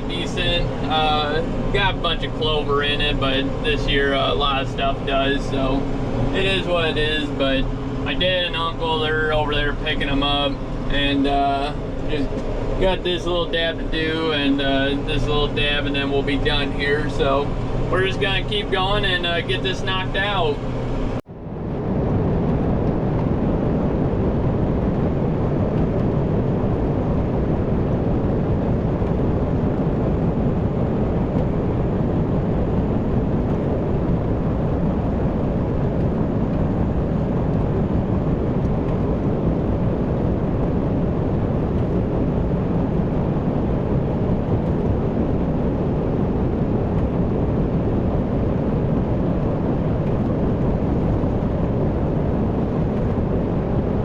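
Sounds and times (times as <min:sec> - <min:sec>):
tractor engine running: 0:00.0 - 0:21.2.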